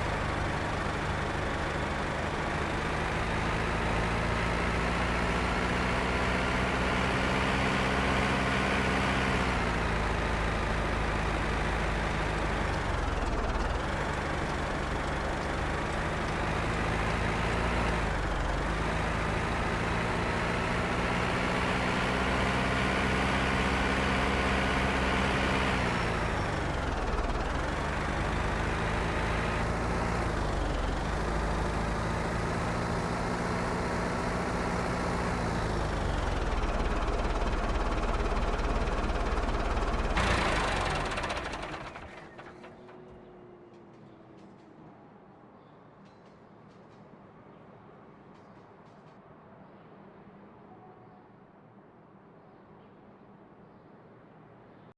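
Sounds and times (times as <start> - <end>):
tractor diesel engine running: 0.0 - 43.5.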